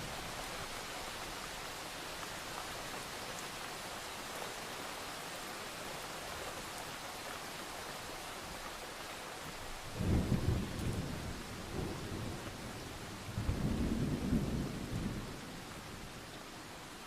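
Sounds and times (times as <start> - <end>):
steady rain: 0.0 - 17.0
rolling thunder: 10.0 - 15.4.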